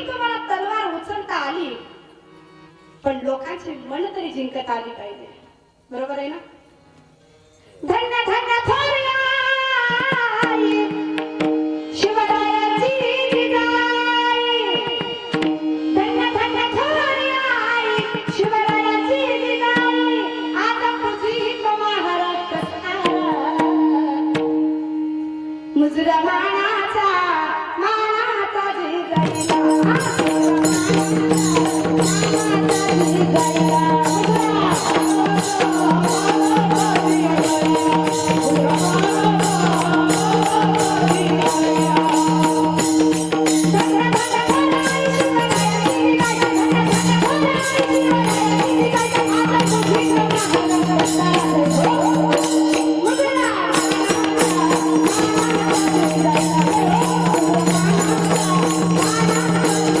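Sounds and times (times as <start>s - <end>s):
jingling percussion: 29.2s - 60.0s
wavering melody: 29.2s - 60.0s.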